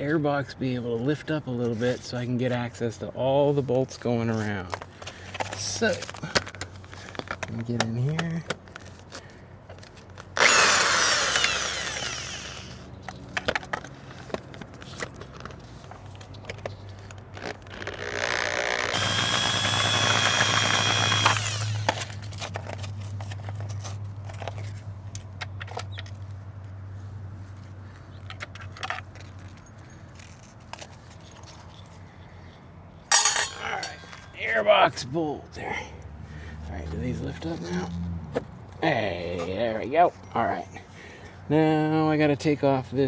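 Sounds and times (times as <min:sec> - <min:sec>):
power driver whining: 0:10.4 - 0:12.9, 0:17.7 - 0:22.2.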